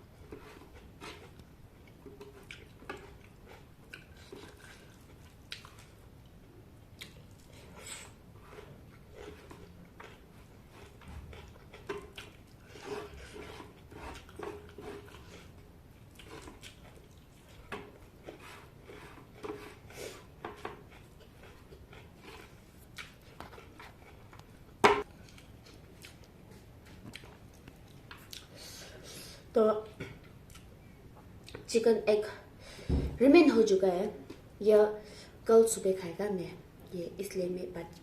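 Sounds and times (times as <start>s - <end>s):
person chewing food: 0.2s - 29.1s, 30.2s - 31.6s.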